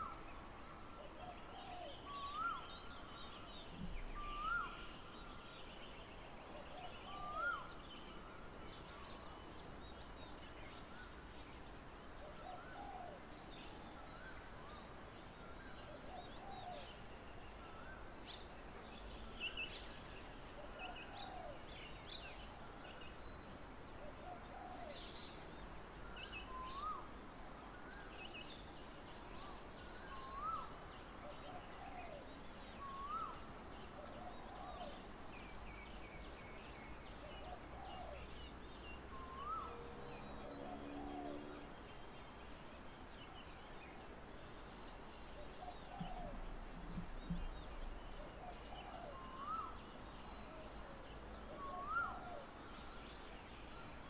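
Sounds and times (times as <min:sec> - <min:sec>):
steady outdoor hiss: 0:00.0 - 0:54.0.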